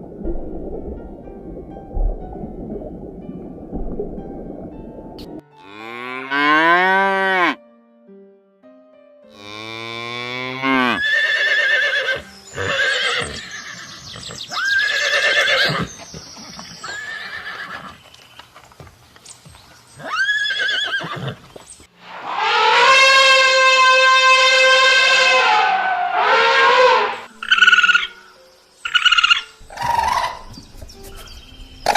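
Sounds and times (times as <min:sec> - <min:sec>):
animal calls: 0:28.8 - 0:31.9.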